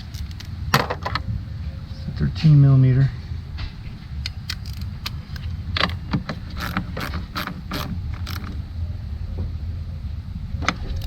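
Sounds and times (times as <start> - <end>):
steady low hum: 0.0 - 11.0
ratchet wrench clicking: 6.5 - 8.6.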